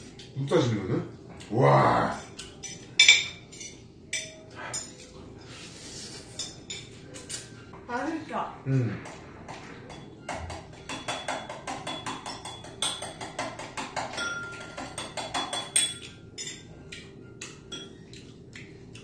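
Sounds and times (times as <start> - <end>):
faint background music: 0.0 - 19.0
wet chewing and lip-smacking: 16.8 - 19.0.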